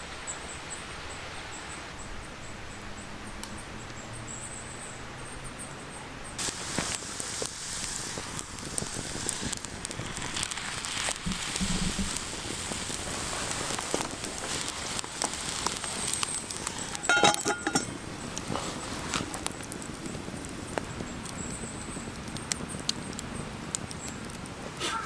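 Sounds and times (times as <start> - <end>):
campfire crackling: 6.3 - 25.0.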